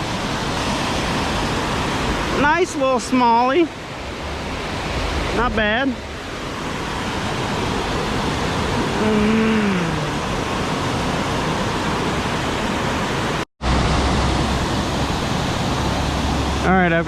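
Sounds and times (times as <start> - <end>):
creek water rushing: 0.0 - 17.0
person humming: 8.8 - 10.2.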